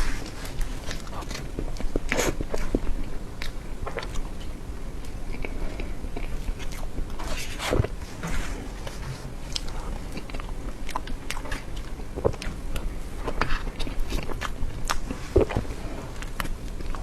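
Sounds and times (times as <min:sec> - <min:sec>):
wet chewing and lip smacks: 0:09.5 - 0:17.0.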